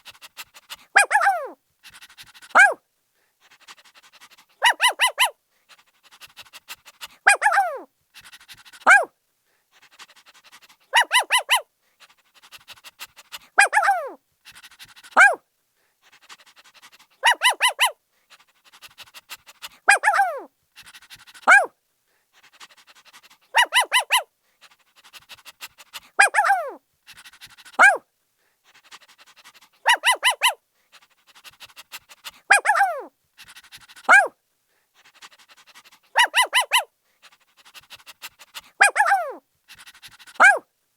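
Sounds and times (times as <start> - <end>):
puppy yipping: 1.0 - 1.6, 2.5 - 2.8, 4.6 - 5.4, 7.3 - 7.9, 8.8 - 9.1, 11.0 - 11.6, 13.6 - 14.2, 15.2 - 15.4, 17.2 - 18.0, 19.9 - 20.5, 21.4 - 21.7, 23.5 - 24.3, 26.2 - 26.8, 27.8 - 28.0, 29.8 - 30.6, 32.5 - 33.1, 34.0 - 34.3, 36.2 - 36.9, 38.8 - 39.4, 40.3 - 40.6.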